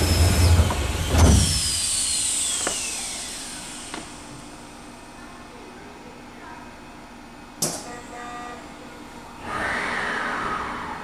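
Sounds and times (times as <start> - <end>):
electric train motor whine: 0.0 - 4.5.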